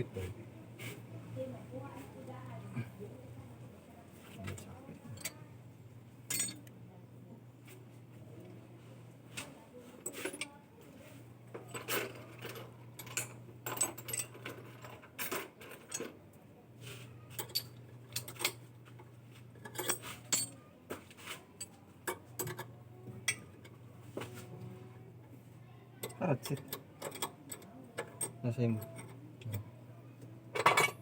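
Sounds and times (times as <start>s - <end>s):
low steady hum: 0.0s - 31.0s
metal tools clinking: 6.3s - 6.7s, 11.6s - 16.1s, 17.3s - 18.6s, 19.6s - 20.6s, 26.0s - 29.5s, 30.6s - 31.0s.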